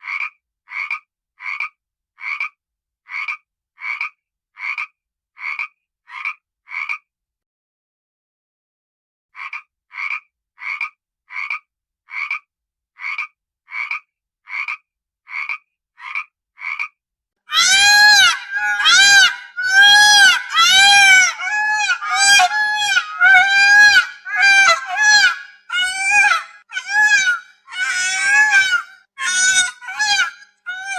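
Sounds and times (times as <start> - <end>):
drawn-out pitched animal calls: 17.5 - 30.9
short animal calls: 17.5 - 30.9.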